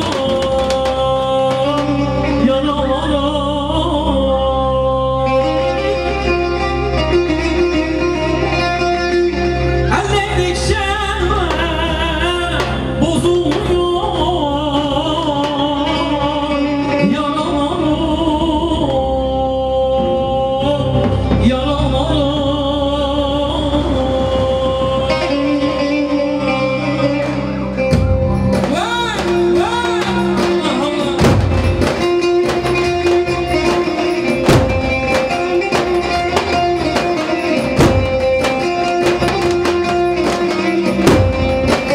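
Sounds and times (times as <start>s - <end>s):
sustained instrumental tones: 0.0s - 41.9s
heavy low beats: 27.8s - 41.9s.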